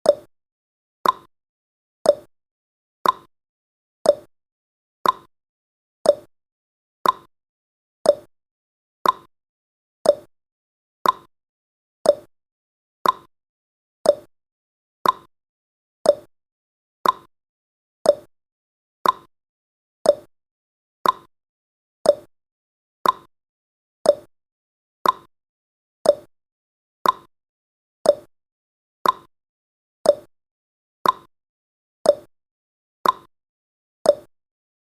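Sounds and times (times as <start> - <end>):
timer ticking: 0.0 - 0.3, 1.0 - 1.3, 2.0 - 2.3, 3.0 - 3.3, 4.0 - 4.3, 5.0 - 5.3, 6.0 - 6.3, 7.0 - 7.3, 8.0 - 8.3, 9.0 - 9.3, 10.0 - 10.3, 11.0 - 11.3, 12.0 - 12.3, 13.0 - 13.3, 14.0 - 14.3, 15.0 - 15.3, 16.0 - 16.3, 17.0 - 17.3, 18.0 - 18.3, 19.0 - 19.3, 20.0 - 20.3, 21.0 - 21.3, 22.0 - 22.3, 23.0 - 23.3, 24.0 - 24.3, 25.0 - 25.3, 26.0 - 26.3, 27.0 - 27.3, 28.0 - 28.3, 29.0 - 29.3, 30.0 - 30.3, 31.0 - 31.3, 32.0 - 32.3, 33.0 - 33.3, 34.1 - 34.3.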